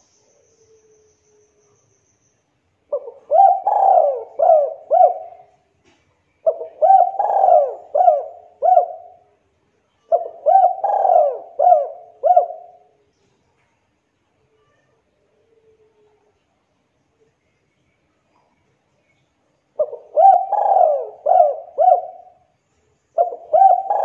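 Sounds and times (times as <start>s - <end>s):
dove cooing: 2.9s - 5.6s, 6.4s - 9.3s, 10.1s - 12.9s, 19.8s - 22.4s, 23.2s - 24.0s.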